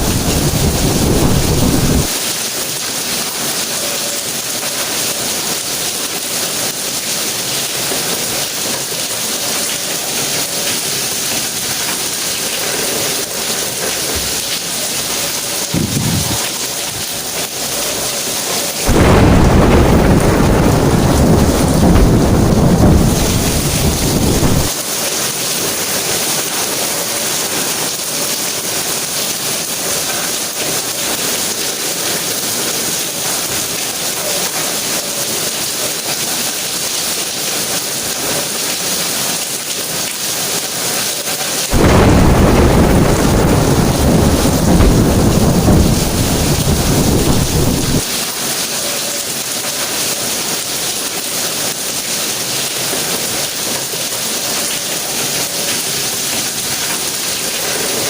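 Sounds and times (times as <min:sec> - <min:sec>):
low rumble of thunder: 0:00.0 - 0:02.1, 0:15.7 - 0:16.5, 0:18.9 - 0:24.7, 0:41.8 - 0:48.1
steady rain falling: 0:00.0 - 0:58.0.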